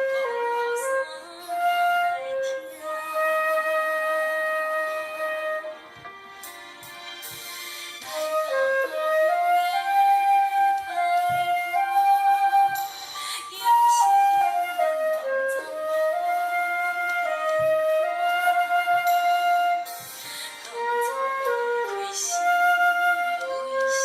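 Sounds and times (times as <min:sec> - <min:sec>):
flute playing slow melody: 0:00.0 - 0:24.0.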